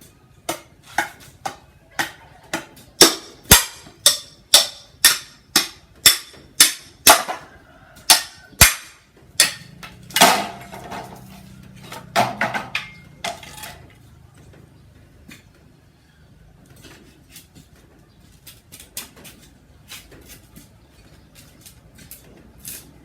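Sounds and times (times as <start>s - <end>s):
sharp hard blows: 3.0s - 7.4s, 8.0s - 11.2s.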